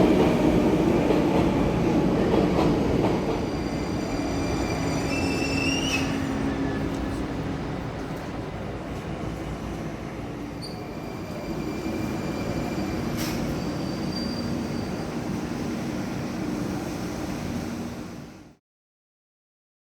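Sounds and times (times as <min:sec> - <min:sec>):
train rumbling: 0:00.0 - 0:18.6
high wheel squeal: 0:03.5 - 0:06.9, 0:10.6 - 0:15.3.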